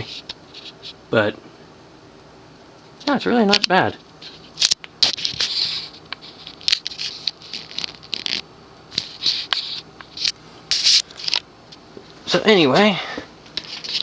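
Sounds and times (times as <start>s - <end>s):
handling clicks and scrapes: 13.5s - 14.0s.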